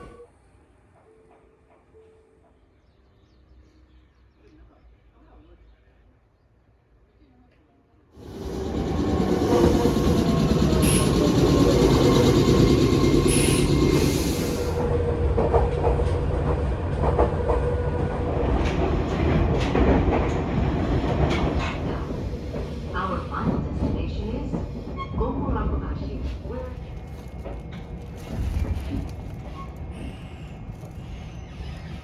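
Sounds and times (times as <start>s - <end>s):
wheels clacking over rail joints: 8.2s - 14.8s, 15.4s - 25.1s, 26.0s - 32.0s
train rumble on rails: 8.2s - 32.0s.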